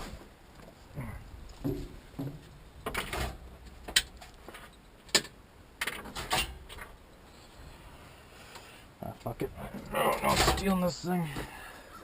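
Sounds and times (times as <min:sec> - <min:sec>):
objects knocking and clattering: 0:01.5 - 0:07.0.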